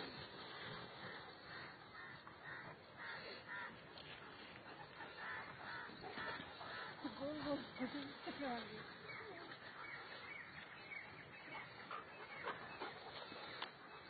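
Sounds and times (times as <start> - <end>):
bird cawing: 1.5 - 4.2, 5.0 - 7.2.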